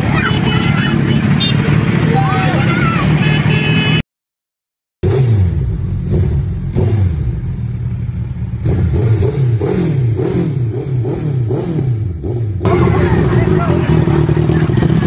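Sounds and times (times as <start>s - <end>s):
motorcycle engine revving: 5.0s - 15.0s.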